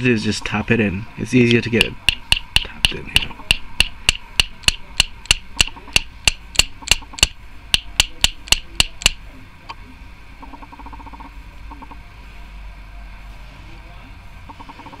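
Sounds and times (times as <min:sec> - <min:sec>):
sharp metal taps: 0:01.8 - 0:09.2.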